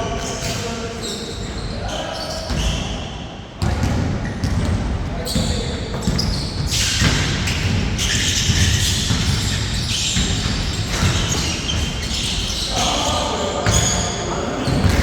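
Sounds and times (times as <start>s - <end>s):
basketball bouncing on court: 3.6s - 12.5s, 14.6s - 15.0s
high-pitched shoe squeaks: 5.3s - 13.2s.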